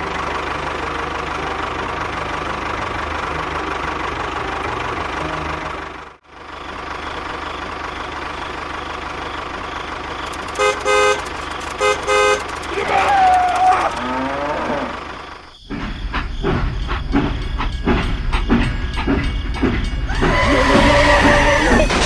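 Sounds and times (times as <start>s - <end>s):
tractor engine running: 0.0s - 22.0s
vehicle horn toots: 10.3s - 12.7s.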